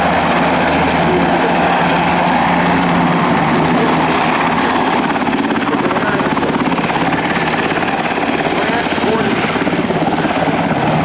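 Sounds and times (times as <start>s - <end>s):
helicopter rotor and turbine: 0.0s - 11.0s.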